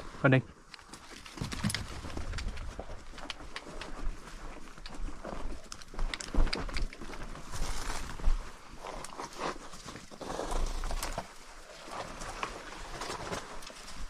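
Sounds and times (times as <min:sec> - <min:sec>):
footsteps through dry grass: 0:07.2 - 0:10.7.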